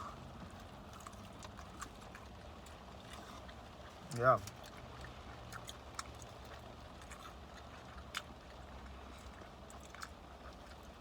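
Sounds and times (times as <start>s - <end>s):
crunching fried chicken: 0.0s - 11.0s
low steady hum: 0.0s - 11.0s.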